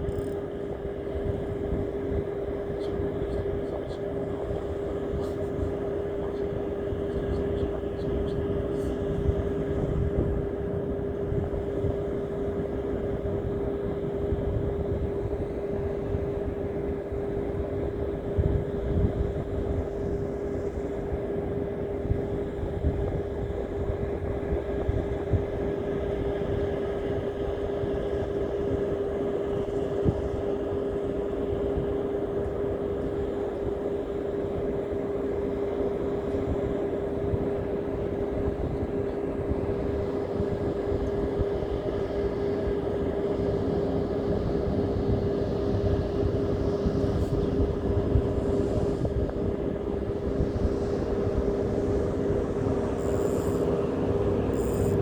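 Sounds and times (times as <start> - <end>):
steady mechanical hum: 0.0 - 55.0
low rumbling noise: 39.3 - 55.0.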